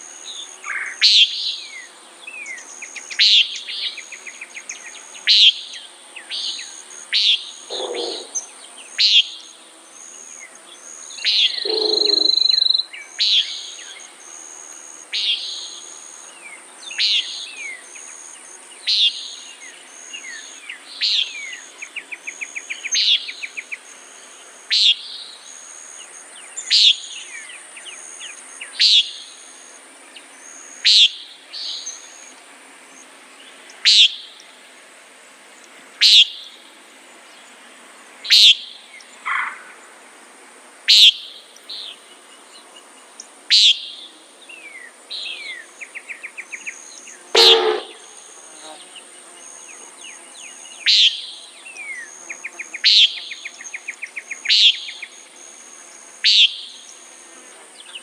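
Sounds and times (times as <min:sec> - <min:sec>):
nighthawk nasal peent call: 0:07.2 - 0:08.4, 0:11.3 - 0:12.7, 0:47.3 - 0:48.3.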